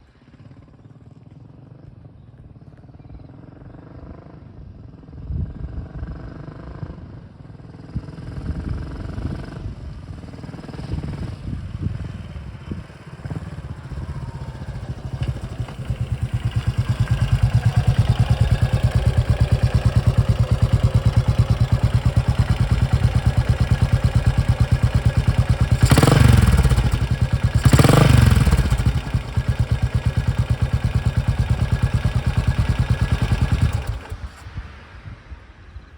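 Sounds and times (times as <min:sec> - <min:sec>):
motorcycle engine idling: 0:10.9 - 0:34.4.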